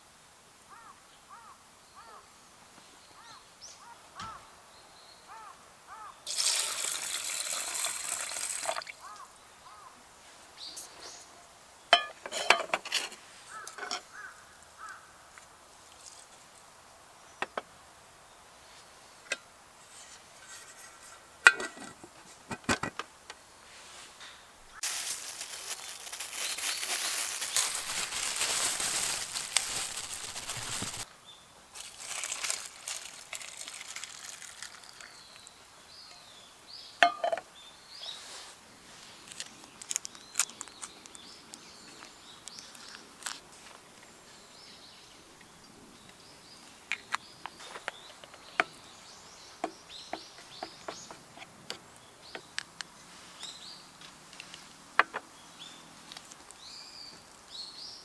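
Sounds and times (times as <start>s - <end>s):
birds chirping: 13.4s - 15.3s, 44.0s - 55.9s.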